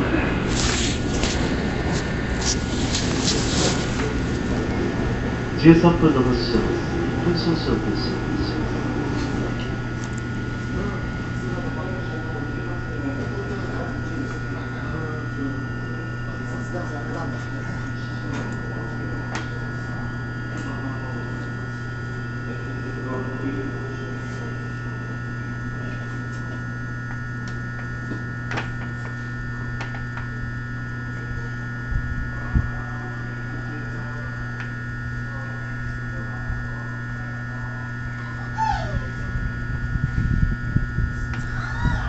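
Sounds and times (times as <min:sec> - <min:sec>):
electrical hum with high whine: 0:00.0 - 0:42.0.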